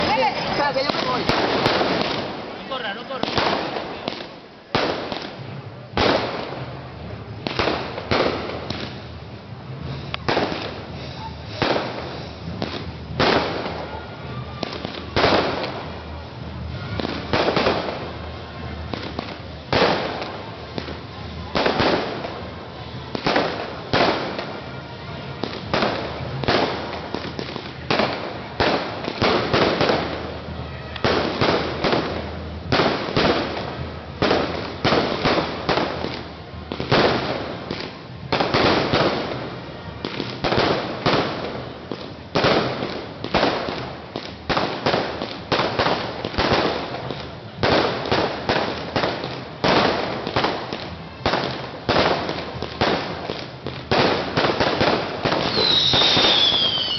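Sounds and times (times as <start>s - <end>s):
fireworks bangs echoing: 0.0s - 56.9s.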